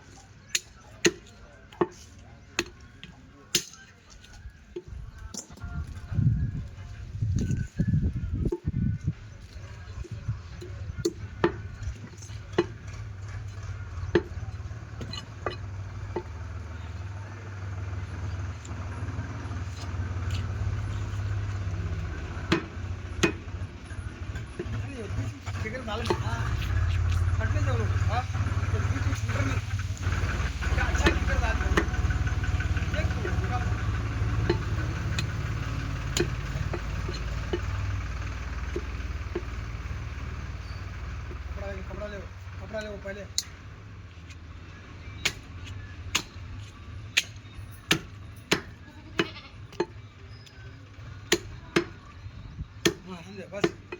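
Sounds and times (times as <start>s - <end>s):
cleaver chopping: 0.5s - 3.8s, 10.1s - 16.6s, 19.8s - 23.6s, 28.5s - 32.5s, 33.1s - 37.8s, 45.2s - 50.0s, 51.3s - 52.0s, 52.8s - 53.9s
low mechanical hum: 4.3s - 53.0s
cleaver chopping through bone: 22.4s - 23.4s, 36.1s - 37.2s, 45.2s - 49.9s, 51.3s - 52.0s, 52.8s - 53.9s.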